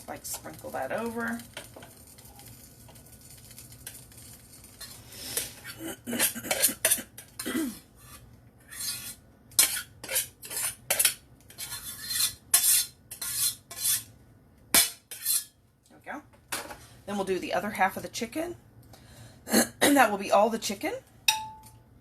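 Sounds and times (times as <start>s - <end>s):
metal spoon scraping cookware: 3.8s - 7.4s, 8.0s - 14.1s, 14.8s - 15.5s.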